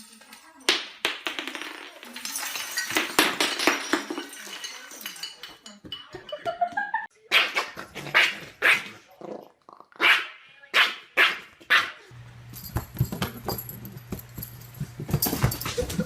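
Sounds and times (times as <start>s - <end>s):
dog barking: 7.3s - 9.0s, 10.0s - 12.1s.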